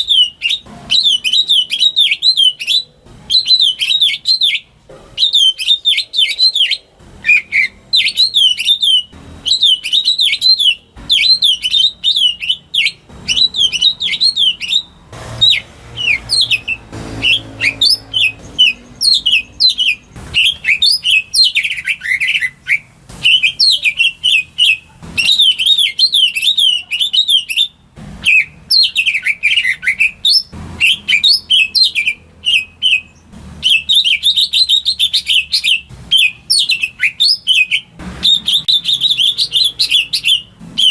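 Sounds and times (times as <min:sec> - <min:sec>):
bird singing whistled trills: 0:00.0 - 0:40.9.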